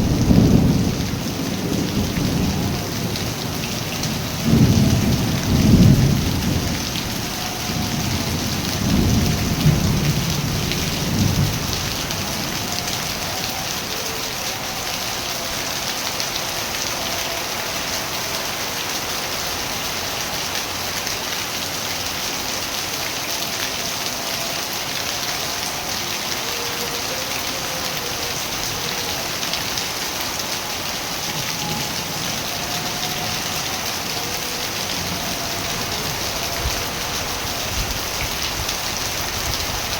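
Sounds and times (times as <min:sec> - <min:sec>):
thunder rumbling: 0:00.0 - 0:14.0
heavy rain falling: 0:00.0 - 0:39.9.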